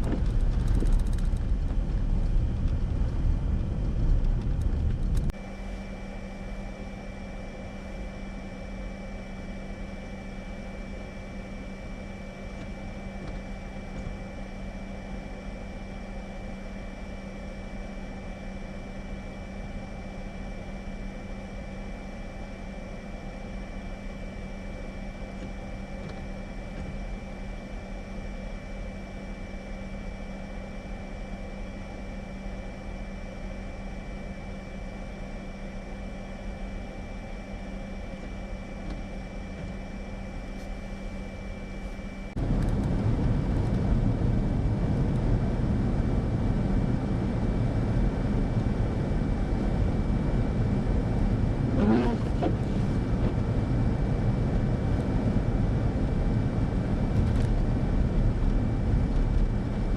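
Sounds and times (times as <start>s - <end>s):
vehicle engine and road drone: 0.0s - 30.0s, 33.2s - 59.9s
faint high whine: 0.0s - 59.9s.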